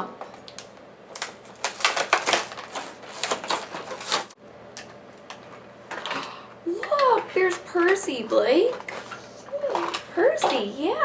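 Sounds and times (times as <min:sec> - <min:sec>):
packaging crinkling and rattling: 0:00.3 - 0:06.2.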